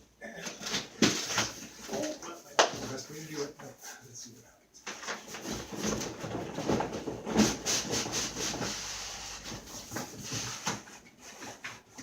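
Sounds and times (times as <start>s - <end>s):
cardboard box scraping and rubbing: 5.3s - 11.8s.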